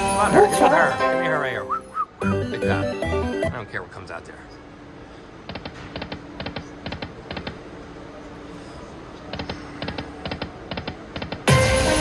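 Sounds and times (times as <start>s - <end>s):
slot machine electronic clicks: 2.2s - 3.6s.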